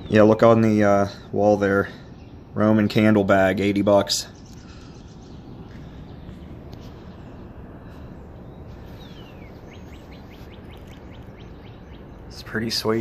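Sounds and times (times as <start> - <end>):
songbird calling: 0.0 - 13.0.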